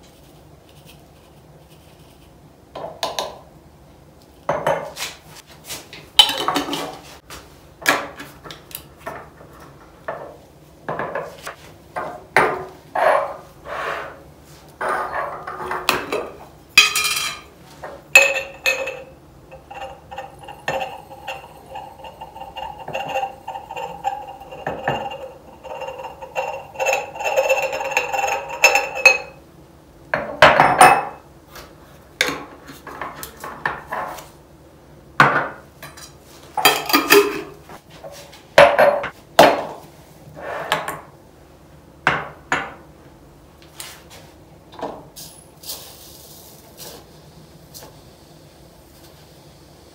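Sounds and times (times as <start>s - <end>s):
glass jars clinking: 18.2s - 29.4s, 36.6s - 37.6s.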